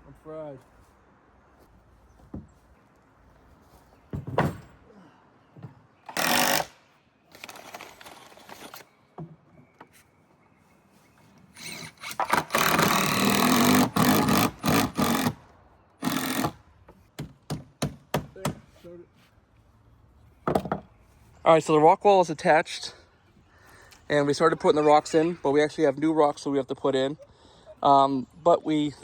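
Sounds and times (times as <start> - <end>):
power tool cutting wood: 11.6 - 15.4, 16.0 - 16.6.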